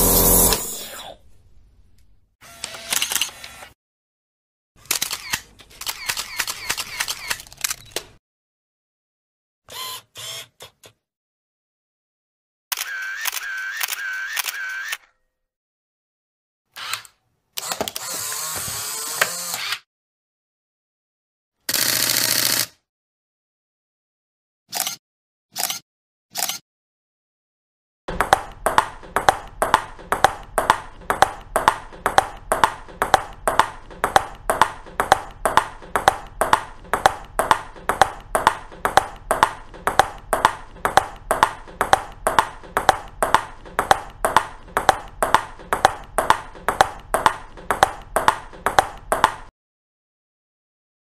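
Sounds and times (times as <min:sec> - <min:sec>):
ping-pong ball clicks: 0:28.1 - 0:49.5.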